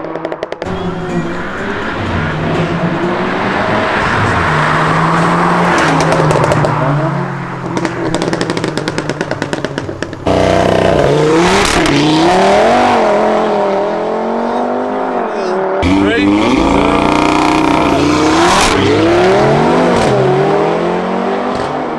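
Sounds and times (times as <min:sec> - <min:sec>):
car engine accelerating: 0:00.1 - 0:21.9
car engine revving: 0:00.1 - 0:21.9.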